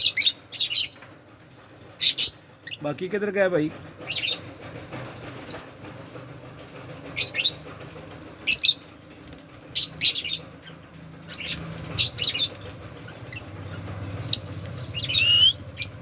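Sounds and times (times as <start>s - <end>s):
parrots chirping: 9.7s - 16.0s.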